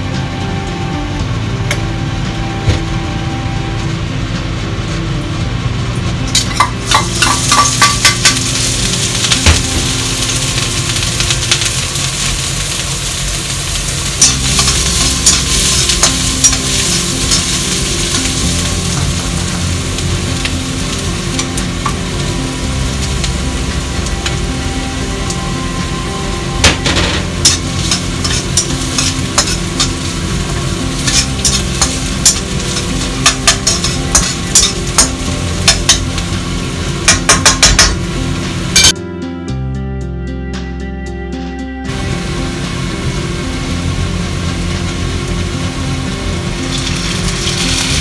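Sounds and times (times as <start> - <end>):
soft background music: 0.0 - 48.0
food sizzling in a wok: 6.2 - 39.0, 41.9 - 48.0
spatula scraping a pan: 27.2 - 30.2, 31.0 - 36.0.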